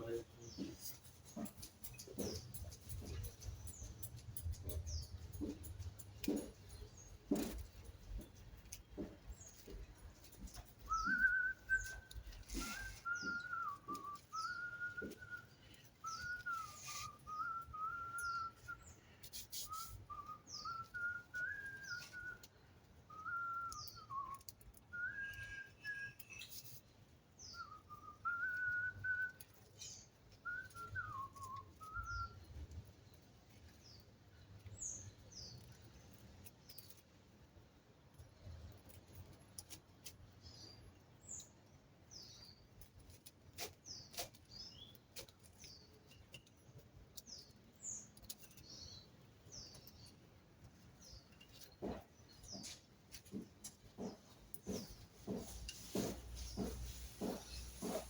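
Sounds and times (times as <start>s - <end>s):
person whistling a tune: 10.9s - 18.8s, 19.6s - 22.4s, 23.1s - 26.4s, 27.6s - 29.4s, 30.4s - 32.4s.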